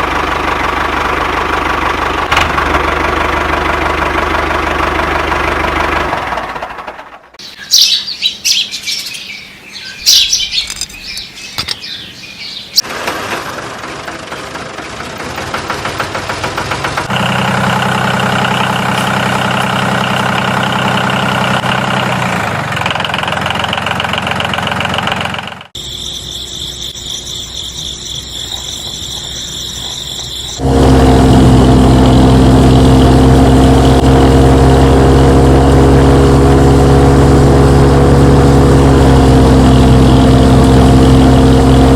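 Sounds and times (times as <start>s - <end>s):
tractor engines running: 0.0s - 41.9s
birds chirping: 7.4s - 12.9s, 25.8s - 30.6s.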